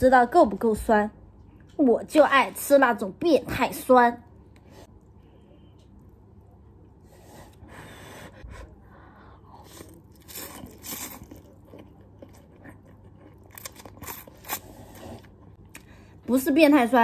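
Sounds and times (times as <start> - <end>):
person chewing noodles: 9.2 - 16.0.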